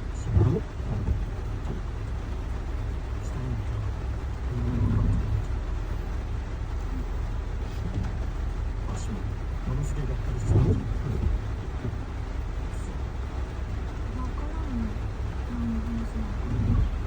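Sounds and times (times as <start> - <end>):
faint voices: 0.0 - 1.9, 3.1 - 5.6, 8.8 - 17.0
road vehicle rumble: 0.0 - 17.0.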